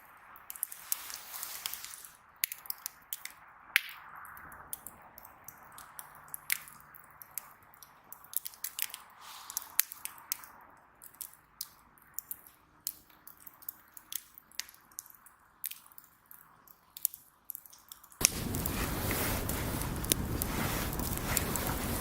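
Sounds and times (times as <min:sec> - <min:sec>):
fire hiss: 0:00.7 - 0:02.2, 0:09.2 - 0:09.8, 0:18.2 - 0:22.0
wood fire crackling and popping: 0:04.7 - 0:10.4, 0:11.0 - 0:22.0.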